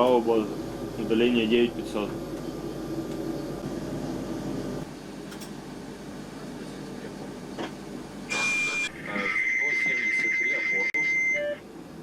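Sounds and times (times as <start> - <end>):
steady high beep: 8.3 - 11.6.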